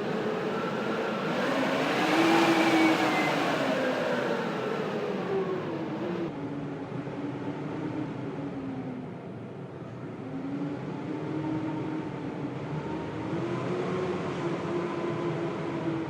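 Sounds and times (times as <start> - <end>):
blizzard wind howling: 0.0 - 16.0.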